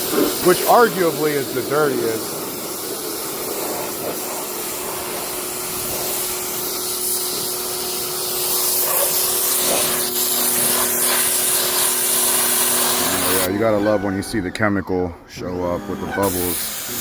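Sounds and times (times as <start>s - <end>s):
pressure washer spraying water: 0.0s - 13.9s, 15.7s - 17.0s
pressure washer motor hum: 0.0s - 14.3s, 15.4s - 17.0s.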